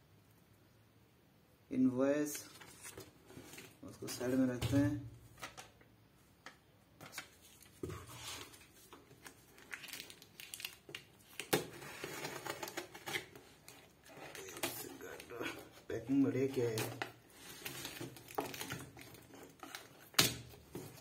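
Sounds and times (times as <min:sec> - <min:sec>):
cardboard packaging rustling: 0:02.3 - 0:04.6, 0:07.0 - 0:21.0.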